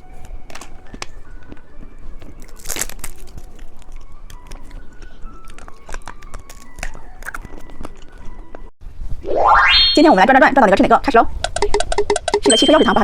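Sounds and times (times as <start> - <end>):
faint background music: 0.0 - 13.0
candy packaging crinkling: 0.1 - 8.6.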